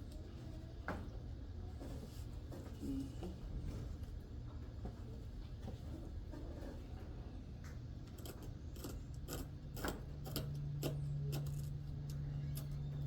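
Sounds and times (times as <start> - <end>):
low motor hum: 10.4 - 13.0.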